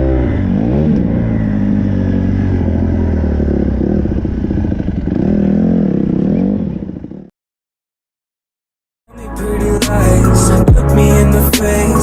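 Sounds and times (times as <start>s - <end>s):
dirt bike engine revving: 0.0s - 7.3s.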